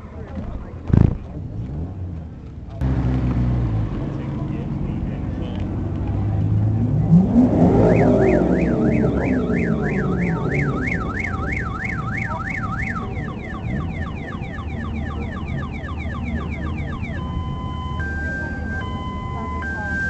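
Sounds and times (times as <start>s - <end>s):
car alarm siren: 6.8s - 20.0s.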